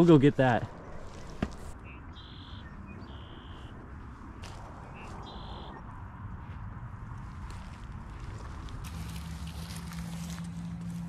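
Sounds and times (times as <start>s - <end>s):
low outdoor background: 0.0s - 11.0s
whistled bird calls: 1.8s - 3.7s, 4.9s - 5.8s.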